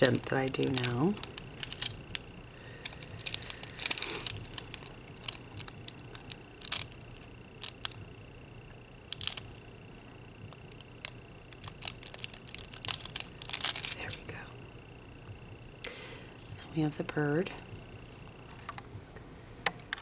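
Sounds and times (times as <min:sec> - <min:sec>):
foil clicks and crinkles: 0:00.0 - 0:08.1, 0:09.0 - 0:14.4.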